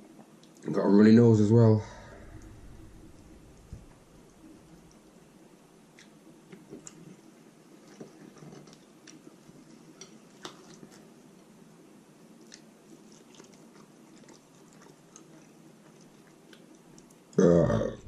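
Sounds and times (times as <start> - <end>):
chewing and biting food: 12.4 - 17.4.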